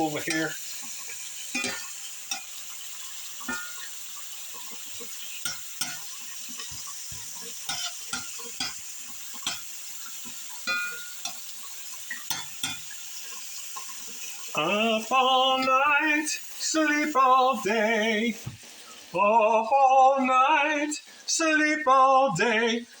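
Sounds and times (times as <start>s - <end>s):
food sizzling in a skillet: 0.0s - 23.0s
utensil scraping a pan: 1.5s - 2.5s, 5.4s - 9.7s.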